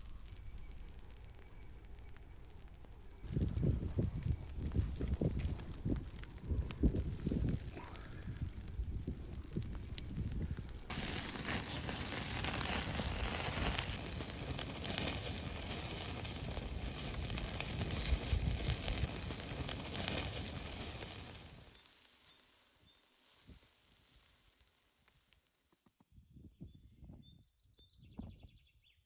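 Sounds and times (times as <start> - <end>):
skewers sizzling on charcoal grill: 3.2 - 24.8.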